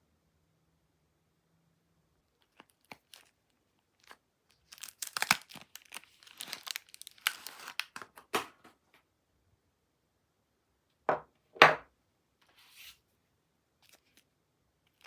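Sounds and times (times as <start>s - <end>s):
wrapper crinkling and tearing: 2.4s - 8.2s.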